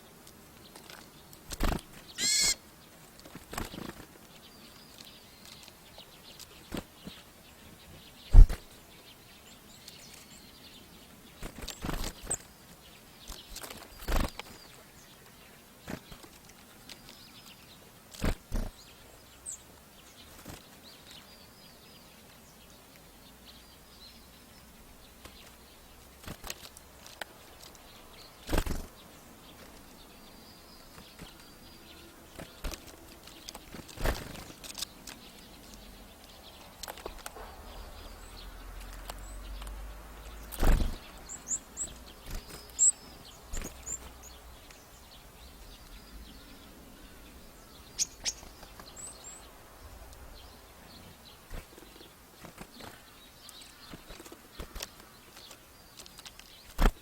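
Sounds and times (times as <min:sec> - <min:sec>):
bird wings fluttering: 0:00.8 - 0:04.3, 0:08.3 - 0:08.8, 0:11.4 - 0:12.5, 0:13.2 - 0:14.8, 0:18.1 - 0:18.9, 0:20.2 - 0:21.2, 0:25.2 - 0:27.8, 0:28.4 - 0:30.0, 0:32.3 - 0:35.5, 0:40.3 - 0:44.7, 0:51.4 - 0:57.0
faint high bird chirps: 0:02.1 - 0:02.6, 0:34.8 - 0:52.1.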